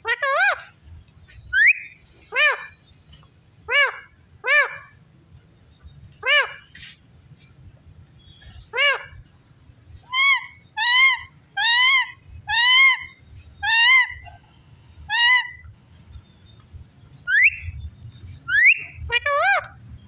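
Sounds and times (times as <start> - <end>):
parrot calling: 0.0 - 0.8, 1.5 - 3.0, 3.7 - 5.0, 6.2 - 6.7, 8.5 - 9.2, 10.0 - 14.5, 15.1 - 15.7, 17.2 - 17.8, 18.4 - 19.8
parrot upward-sliding whistles: 17.3 - 17.7, 18.5 - 19.0.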